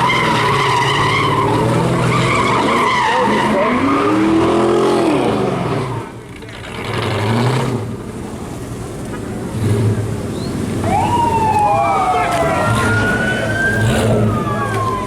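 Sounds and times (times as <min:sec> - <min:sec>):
tyres squealing: 0:00.0 - 0:04.6
car engine revving: 0:12.2 - 0:14.6.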